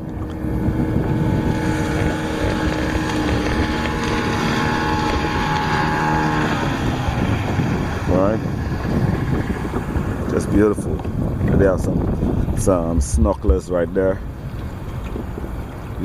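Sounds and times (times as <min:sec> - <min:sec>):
motorboat engine passing: 0:00.0 - 0:16.0
wind rumbling on microphone: 0:00.0 - 0:16.0.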